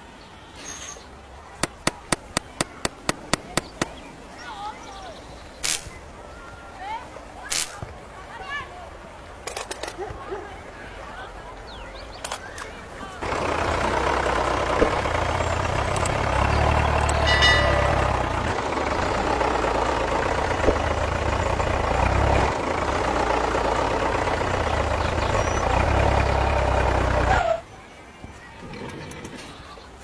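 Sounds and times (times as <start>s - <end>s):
motor humming: 13.2s - 27.4s.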